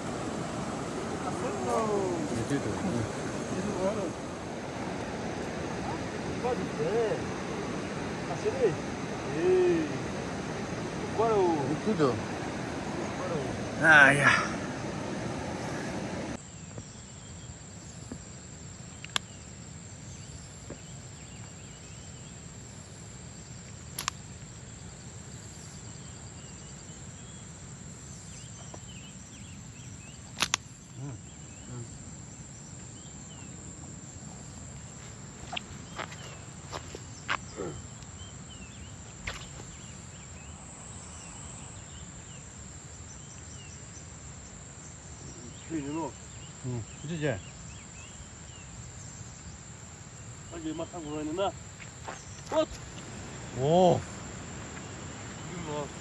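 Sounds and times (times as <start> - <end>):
insects trilling: 0.0 - 56.0
sharp clicks: 24.0 - 24.2, 30.4 - 30.7.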